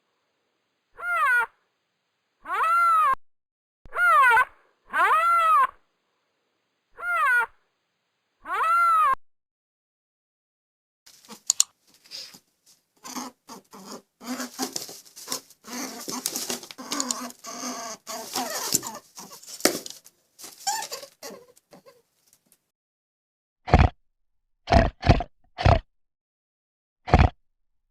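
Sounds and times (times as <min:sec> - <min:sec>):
small animal squeaks and chirps: 0:01.0 - 0:01.5, 0:02.5 - 0:03.2, 0:03.9 - 0:05.8, 0:07.0 - 0:07.5, 0:20.6 - 0:22.0.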